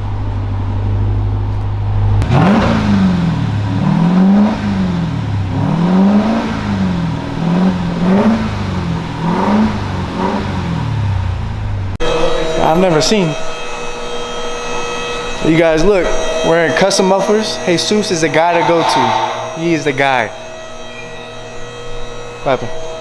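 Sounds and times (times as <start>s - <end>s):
car engine idling and revving: 0.0s - 12.2s.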